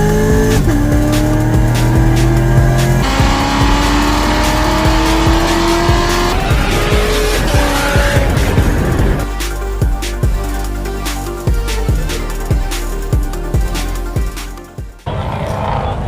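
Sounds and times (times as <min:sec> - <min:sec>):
car engine accelerating: 0:00.0 - 0:09.3
music with steady beat: 0:00.0 - 0:15.1.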